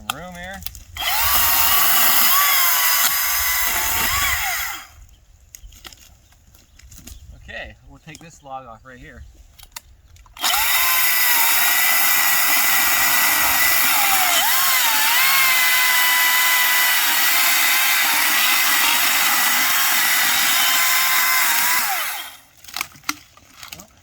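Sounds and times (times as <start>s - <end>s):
electric chainsaw cutting log: 1.0s - 5.0s, 10.4s - 22.9s.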